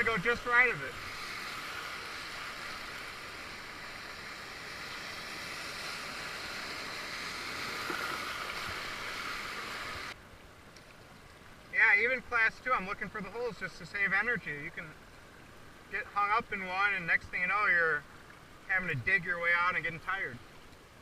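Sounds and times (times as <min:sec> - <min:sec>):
river rapid rushing: 0:00.0 - 0:10.2.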